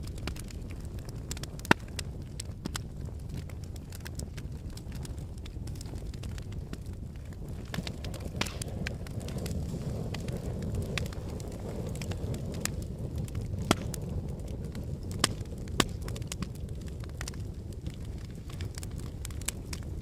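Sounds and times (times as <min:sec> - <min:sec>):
volcano low rumble: 0:00.0 - 0:20.0.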